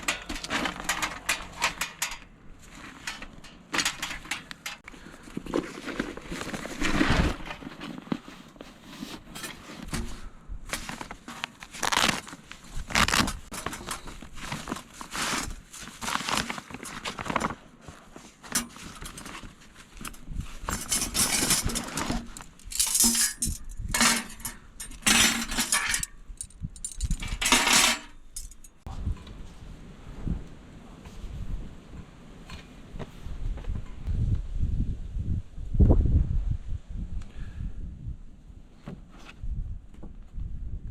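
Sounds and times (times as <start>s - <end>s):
metal parts clinking and clanking: 0.0s - 4.9s, 20.0s - 28.8s.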